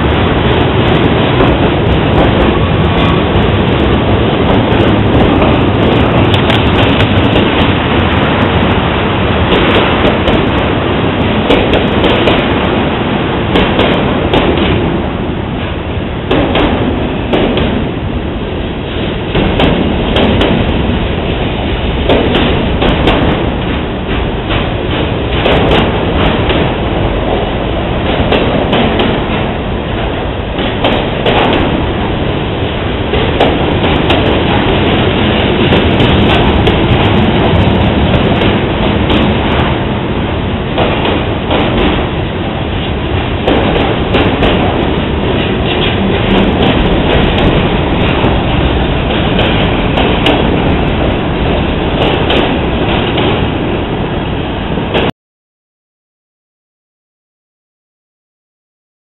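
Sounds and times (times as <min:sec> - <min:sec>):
rail cars clanking and knocking: 0:00.0 - 0:55.1
train wheels rumbling on rails: 0:00.0 - 0:55.1.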